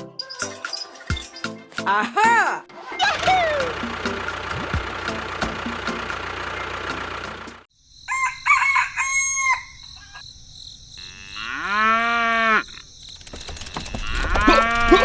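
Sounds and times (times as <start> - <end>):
chickens calling and crowing: 8.1 - 10.2, 13.7 - 15.0.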